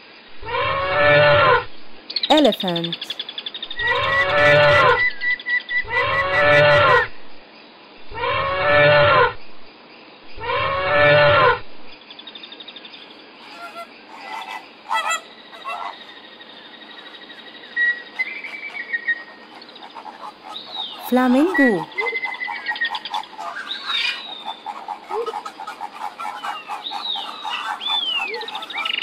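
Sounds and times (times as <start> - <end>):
elephant trumpeting: 18.5 - 29.0.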